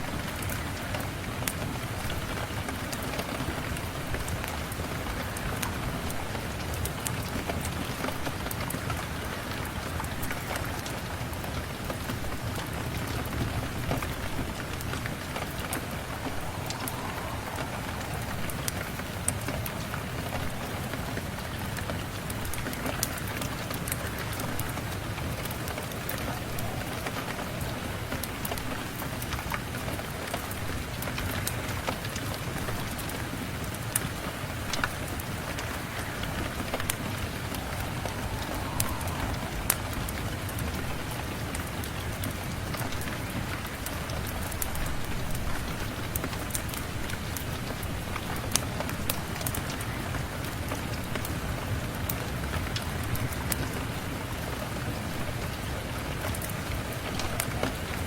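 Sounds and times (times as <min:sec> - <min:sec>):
steady rain falling: 0:00.0 - 0:58.0
low rumble: 0:14.4 - 0:20.6, 0:35.0 - 0:42.2.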